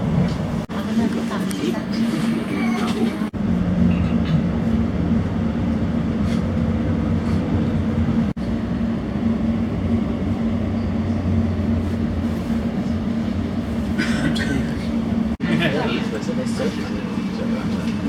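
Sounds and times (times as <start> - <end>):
train rumble: 0.0 - 18.0
constant low hum: 3.2 - 15.4.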